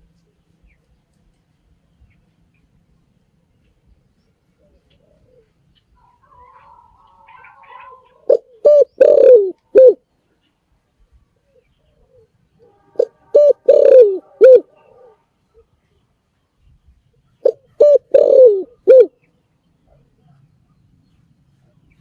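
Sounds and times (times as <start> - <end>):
dove cooing: 4.6 - 10.0, 11.4 - 15.8, 17.4 - 19.2.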